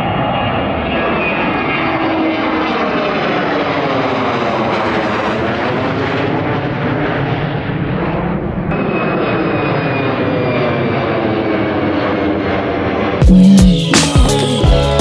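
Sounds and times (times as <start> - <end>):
airliner passing low overhead: 0.0 - 13.6.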